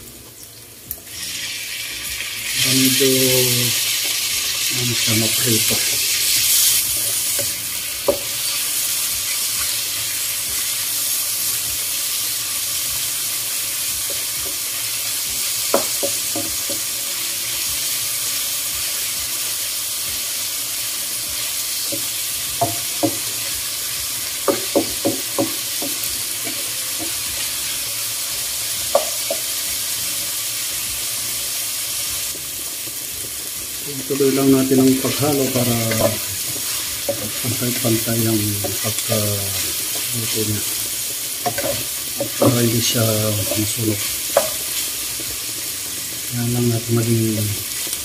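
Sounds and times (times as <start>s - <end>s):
meat sizzling in a wok: 0.0s - 48.0s
spatula knocking against pan: 22.6s - 23.2s, 24.4s - 26.0s, 28.9s - 29.4s.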